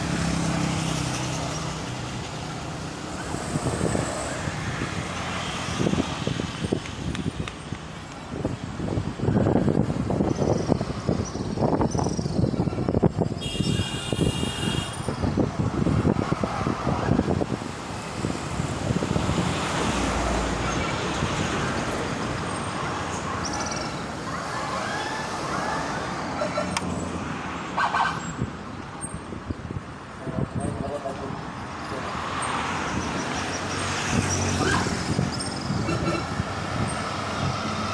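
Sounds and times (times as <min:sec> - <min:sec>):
highway traffic passing: 0:00.0 - 0:37.9.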